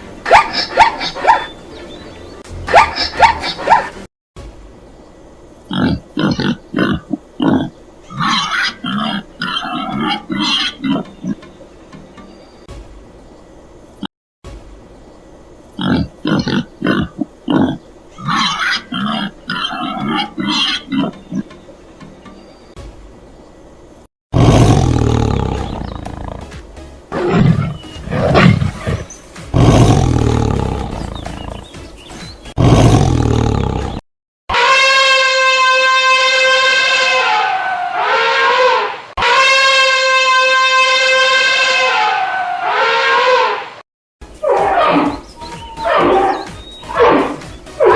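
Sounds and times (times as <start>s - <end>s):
pig grunting: 5.7s - 11.4s, 15.8s - 21.5s, 24.4s - 26.5s, 27.1s - 31.7s, 32.6s - 34.0s
lion roaring: 24.4s - 26.4s, 27.1s - 31.6s, 32.6s - 34.0s, 44.4s - 45.2s, 45.8s - 47.9s.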